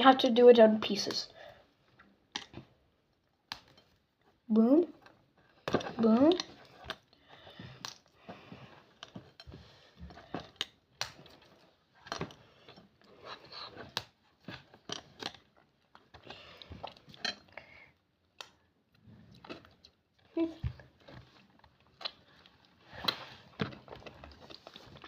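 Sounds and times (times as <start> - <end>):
candy snapping and crackling: 10.6 - 11.3.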